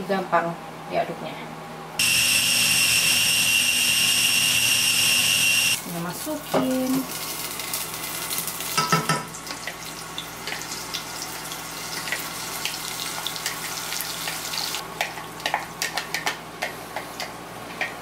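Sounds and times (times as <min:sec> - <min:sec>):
chili paste sizzling in hot oil: 0:02.0 - 0:14.8.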